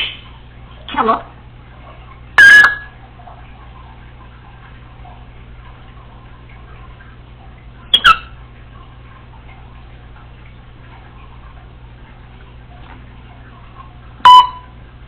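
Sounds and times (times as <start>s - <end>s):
faint steady hum: 0.0s - 15.0s
parrot click-whistle: 7.9s - 8.3s.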